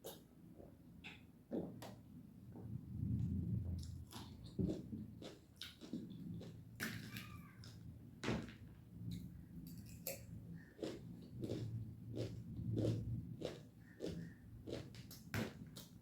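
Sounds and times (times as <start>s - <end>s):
close chewing with mouth smacks: 3.8s - 7.2s, 9.1s - 16.0s.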